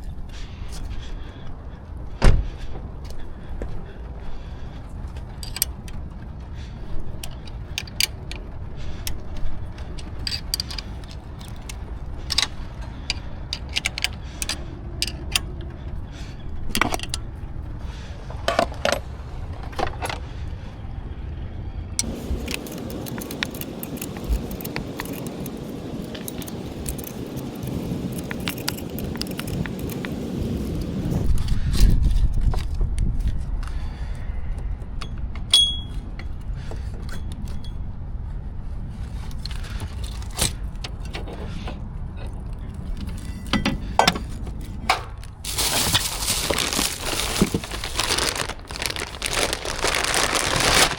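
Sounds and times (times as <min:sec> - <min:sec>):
steady rushing noise: 0:00.0 - 0:34.9
light metallic clinks and taps: 0:35.0 - 0:36.4.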